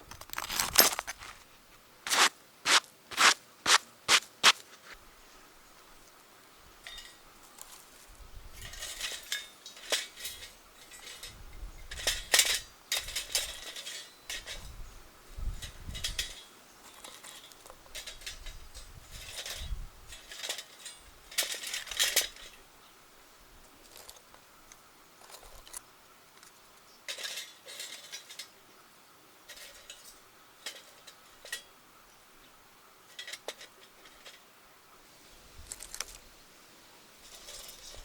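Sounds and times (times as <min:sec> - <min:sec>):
metal parts clinking and scraping: 0:00.0 - 0:01.4, 0:02.1 - 0:03.8, 0:06.8 - 0:07.8, 0:08.6 - 0:14.8, 0:15.6 - 0:22.6, 0:27.1 - 0:28.6, 0:29.5 - 0:31.7, 0:33.0 - 0:34.5, 0:37.2 - 0:38.0.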